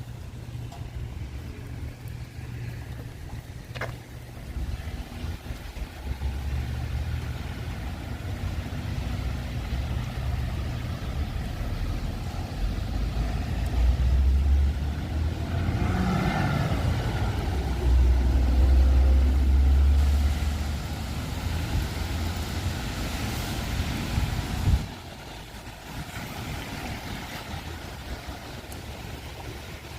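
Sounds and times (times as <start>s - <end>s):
wind buffeting microphone: 21.0s - 29.9s.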